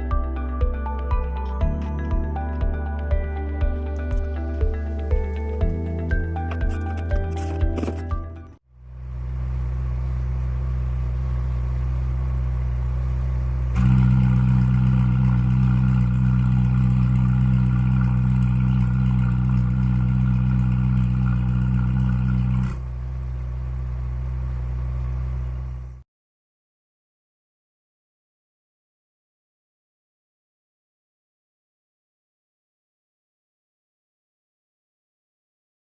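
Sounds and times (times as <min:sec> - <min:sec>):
car engine idling: 0:08.7 - 0:26.0.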